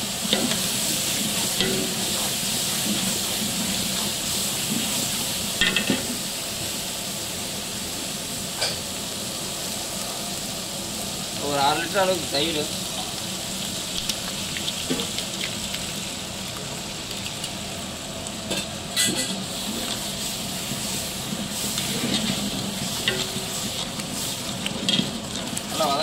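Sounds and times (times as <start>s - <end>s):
ladle stirring and scraping: 0.0s - 6.1s, 19.0s - 26.0s
food sizzling in a metal pot: 0.0s - 26.0s.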